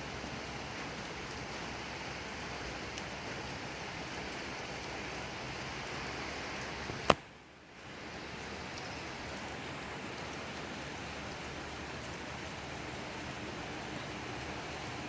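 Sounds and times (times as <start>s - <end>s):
steady rain falling: 0.0s - 15.0s
sharp click: 7.1s - 7.3s.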